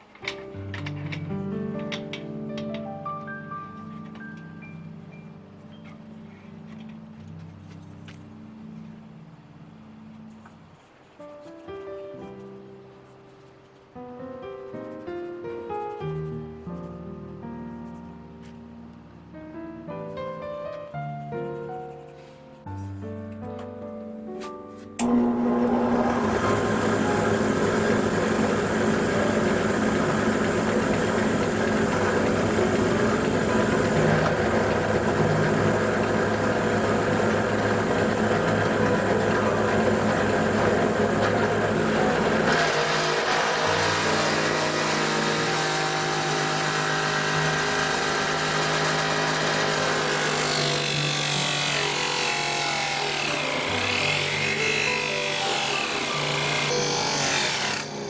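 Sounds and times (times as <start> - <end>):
power tool working wood: 25.0 - 58.0.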